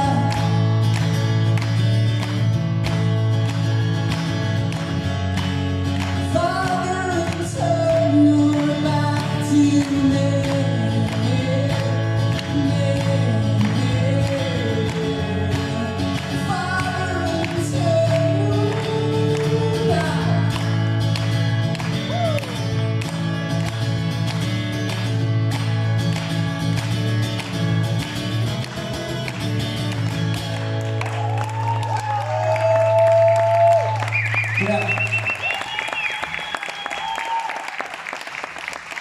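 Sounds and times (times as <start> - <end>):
man singing: 0.0 - 0.7, 6.2 - 20.7
acoustic guitar strumming: 0.0 - 31.0.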